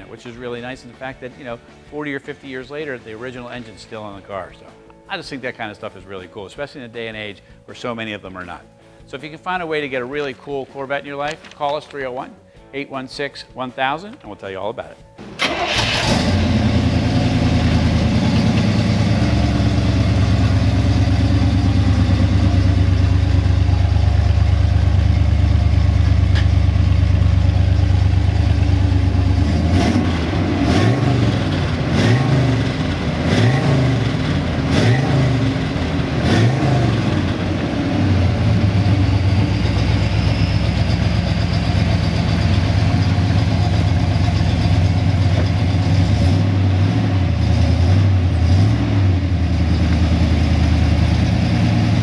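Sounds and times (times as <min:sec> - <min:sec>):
car engine idling and revving: 0:15.2 - 0:52.0.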